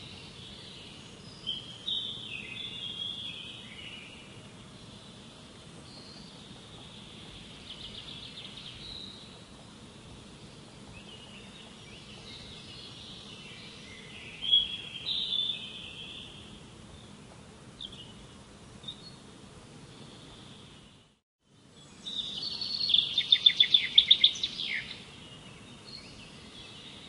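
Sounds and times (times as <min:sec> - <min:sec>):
faint background hiss: 0:00.0 - 0:27.0
songbirds singing: 0:00.0 - 0:27.0.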